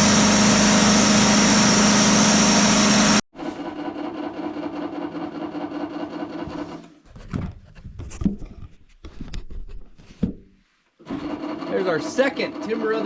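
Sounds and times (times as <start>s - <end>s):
sawmill engine idling: 0.0s - 3.2s.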